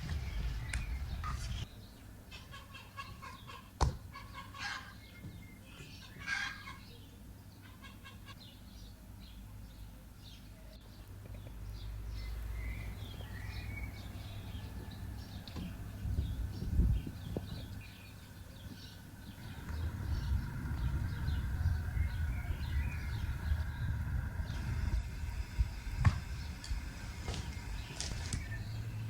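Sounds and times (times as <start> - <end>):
chickens clucking: 2.3 - 7.0, 12.8 - 29.0.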